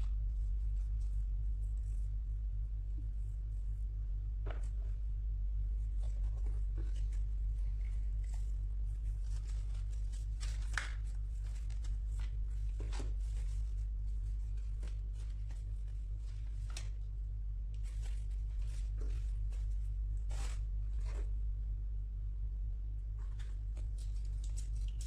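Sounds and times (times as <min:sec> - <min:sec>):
low electrical hum: 0:00.0 - 0:25.0
packaging rustling and scraping: 0:05.9 - 0:17.0, 0:17.8 - 0:21.4.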